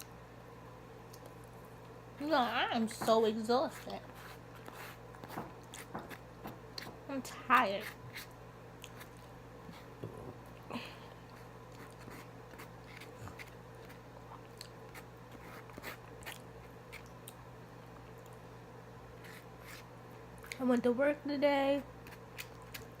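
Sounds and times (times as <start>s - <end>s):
faint electrical hum: 0.0s - 23.0s
chewing and biting: 22.0s - 23.0s.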